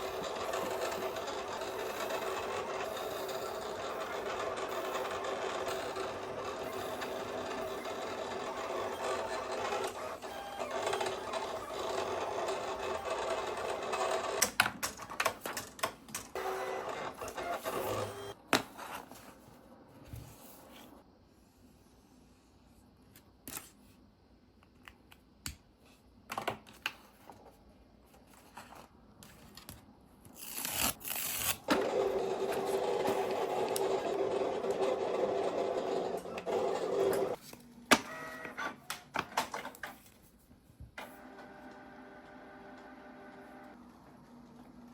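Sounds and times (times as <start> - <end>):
electric sewing machine humming: 0.0 - 14.4, 31.7 - 37.4.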